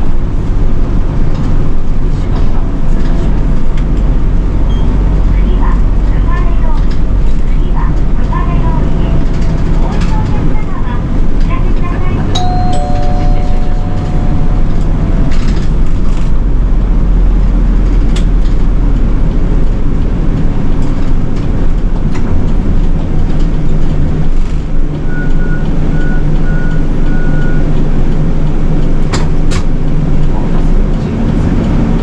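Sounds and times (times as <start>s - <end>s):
bus engine running: 0.0s - 32.0s
short high beeps: 12.4s - 14.9s
two-note electronic chime: 12.4s - 15.0s.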